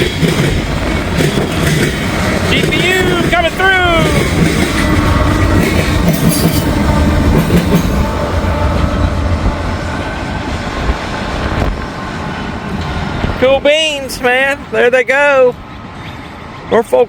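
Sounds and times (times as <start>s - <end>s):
freight train passing: 0.0s - 17.0s.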